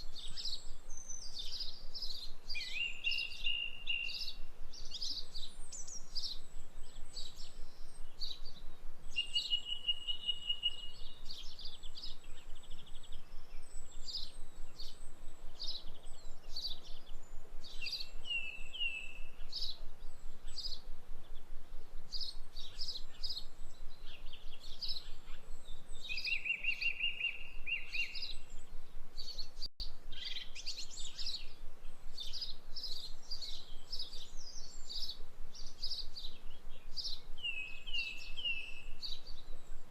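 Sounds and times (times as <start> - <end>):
songbirds chirping and singing: 0.0 - 39.9
bird trills: 9.1 - 20.9.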